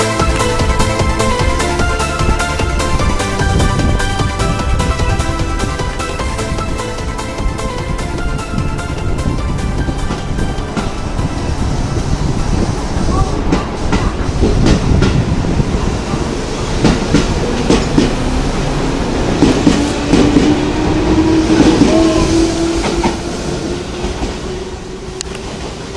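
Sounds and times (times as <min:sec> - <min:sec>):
steady rising tone: 0:00.0 - 0:13.5, 0:14.5 - 0:25.9
train wheels clicking on rail joints: 0:00.0 - 0:25.9.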